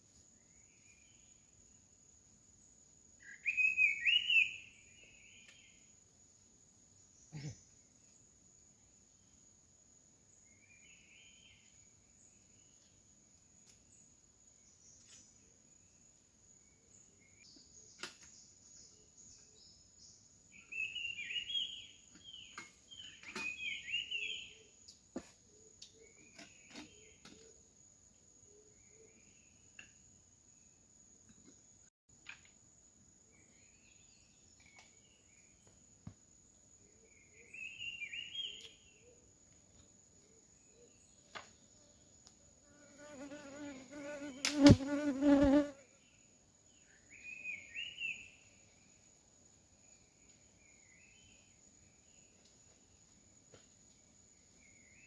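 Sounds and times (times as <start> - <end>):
bird chirping: 3.2 - 5.8, 16.7 - 24.7, 36.9 - 39.2, 46.7 - 48.6.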